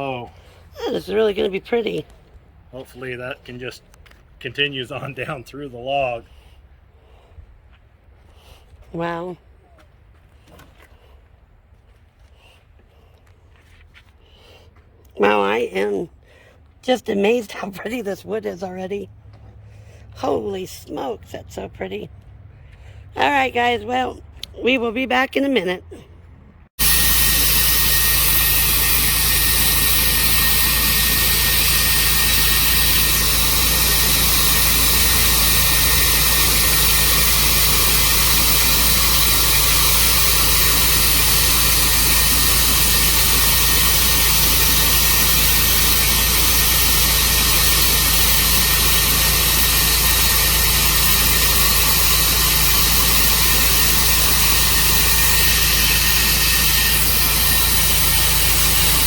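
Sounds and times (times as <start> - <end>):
sawmill engine hum: 26.8 - 59.0.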